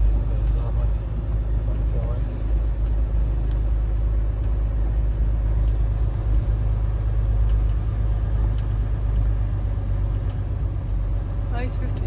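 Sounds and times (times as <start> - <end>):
diesel truck engine rumbling: 0.0 - 12.0.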